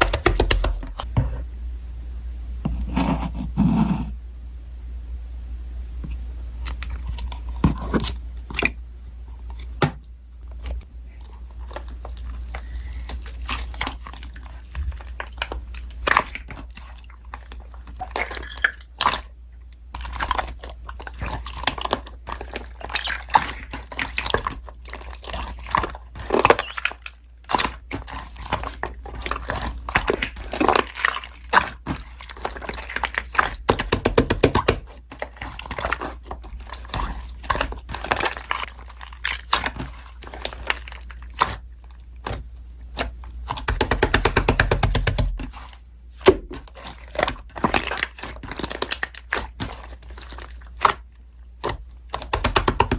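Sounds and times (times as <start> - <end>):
slime squished by hand: 11.1 - 52.9.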